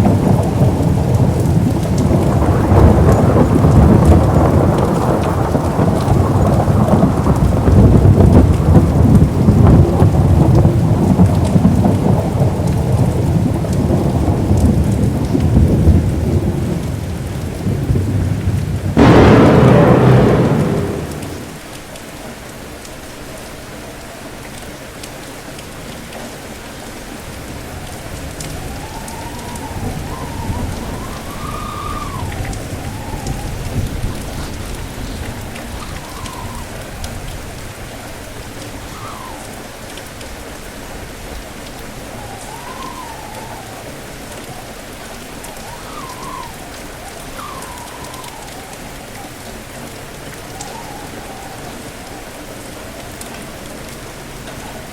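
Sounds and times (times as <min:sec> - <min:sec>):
heavy rain: 0:00.0 - 0:54.9
thunder rumbling: 0:00.1 - 0:21.6, 0:28.5 - 0:35.2
wind whistling: 0:19.0 - 0:21.6, 0:28.6 - 0:34.0, 0:47.4 - 0:49.4.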